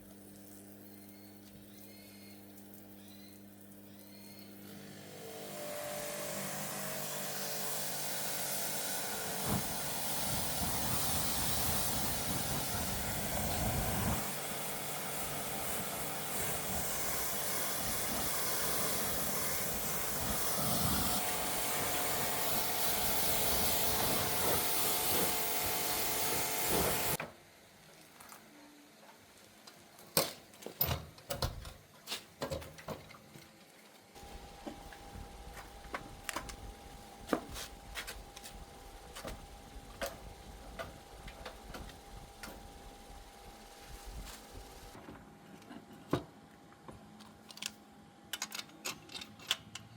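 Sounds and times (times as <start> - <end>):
power tool hissing: 4.8 - 27.2.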